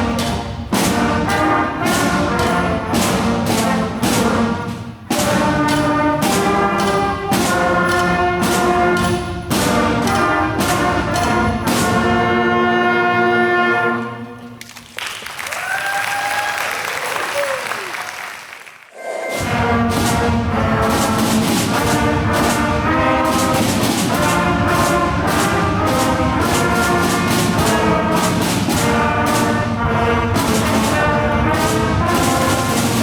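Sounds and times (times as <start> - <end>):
band with brass playing chords: 0.0 - 14.6, 18.9 - 33.0
audience applause: 14.6 - 19.0
people cheering: 14.6 - 19.3.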